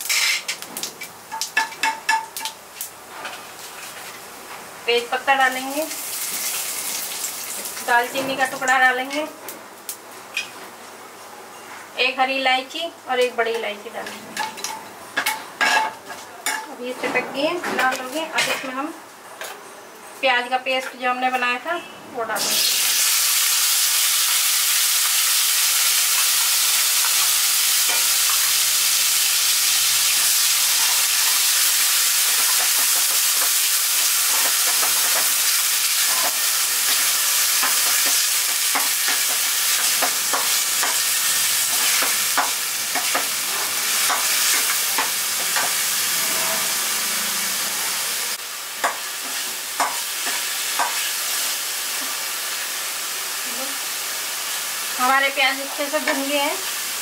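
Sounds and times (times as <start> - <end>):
paste sizzling in hot oil: 5.5 - 8.0, 22.4 - 57.0.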